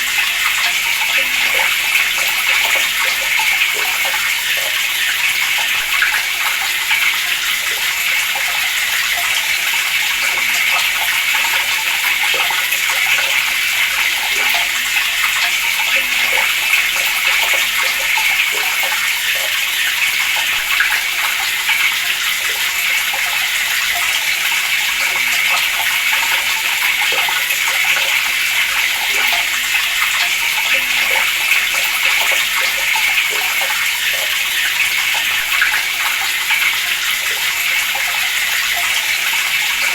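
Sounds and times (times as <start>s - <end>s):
water running from a tap: 0.0s - 39.9s.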